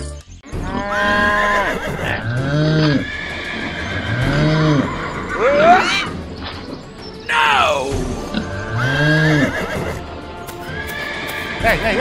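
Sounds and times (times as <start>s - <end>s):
low arching animal calls: 0.5s - 6.3s, 7.2s - 10.0s
horse whinnying: 0.6s - 6.2s, 7.3s - 10.0s, 10.6s - 11.6s.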